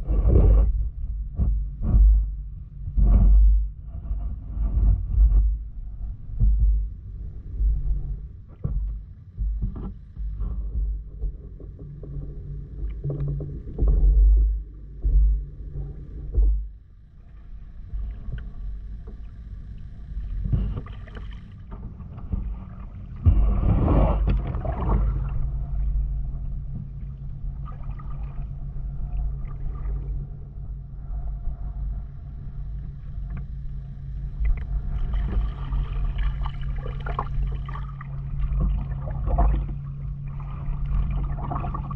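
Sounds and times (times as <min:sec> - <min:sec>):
steady low hum: 0:00.0 - 0:41.9
wind rumbling on microphone: 0:00.0 - 0:41.9
paddle strokes splashing: 0:20.4 - 0:25.8.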